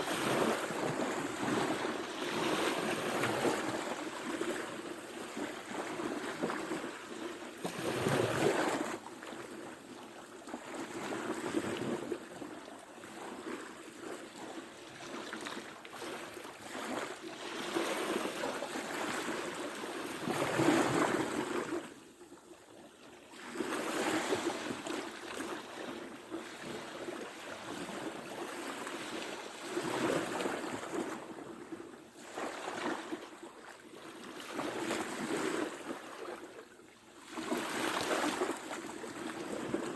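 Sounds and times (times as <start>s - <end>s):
ocean waves breaking: 0.0s - 6.8s, 37.3s - 39.9s.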